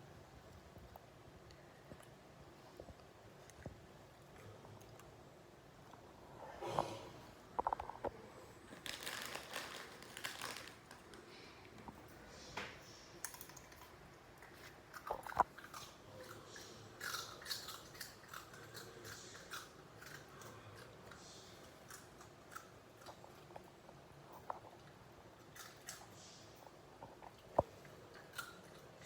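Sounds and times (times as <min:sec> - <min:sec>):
dog crunching pork rinds: 0:07.6 - 0:11.3, 0:13.2 - 0:26.4, 0:27.0 - 0:29.0.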